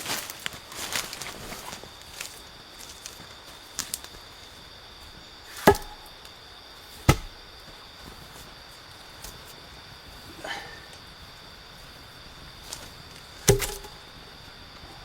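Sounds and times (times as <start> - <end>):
sharp chopping blows: 5.6 - 6.1, 7.1 - 7.4, 13.5 - 14.0.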